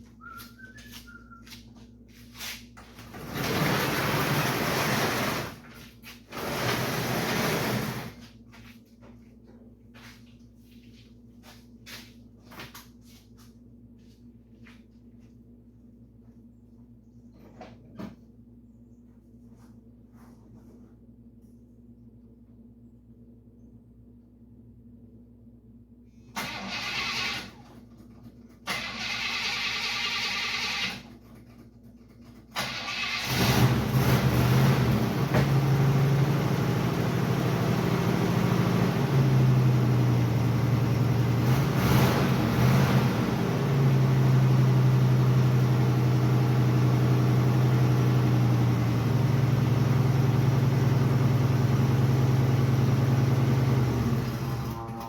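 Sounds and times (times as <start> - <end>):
engine running and revving: 3.0 - 5.6, 6.3 - 8.2, 32.6 - 55.0
engine cranking: 26.4 - 28.0, 28.6 - 31.6, 32.3 - 35.6.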